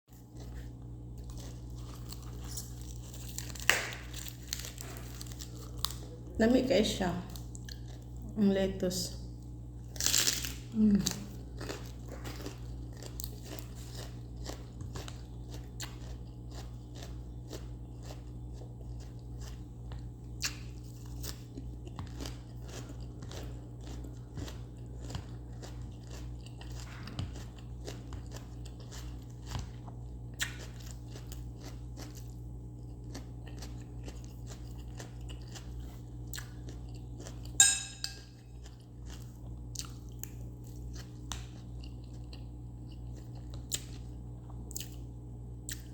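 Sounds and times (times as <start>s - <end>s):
chewing crisp vegetables: 0.1s - 45.9s
low hum: 36.4s - 38.8s.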